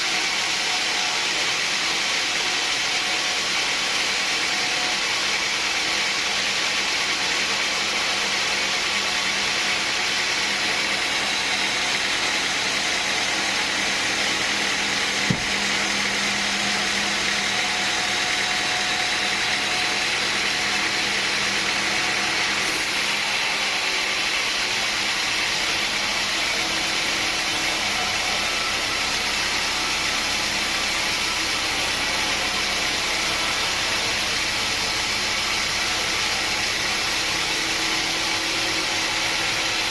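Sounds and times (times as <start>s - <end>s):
sawmill machinery running: 0.0s - 39.9s
sharp knock: 15.2s - 15.6s.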